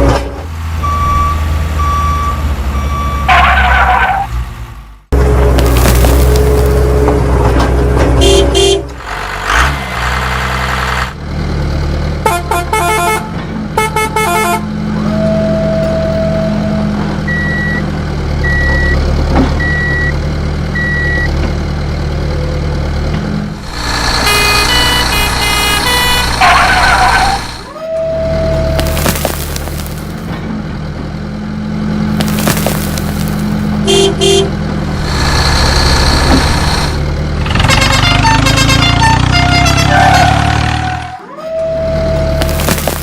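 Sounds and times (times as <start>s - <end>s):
truck engine rumble: 0.0s - 43.0s
truck horn honks: 3.1s - 4.3s, 8.1s - 9.0s, 12.2s - 17.0s, 23.8s - 28.8s, 33.8s - 34.6s, 37.5s - 42.4s.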